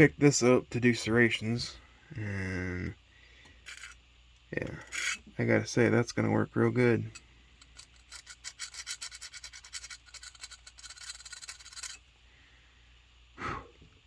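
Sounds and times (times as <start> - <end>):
knife scraping in sharpener: 3.7 - 4.0, 4.8 - 5.2, 7.6 - 12.0.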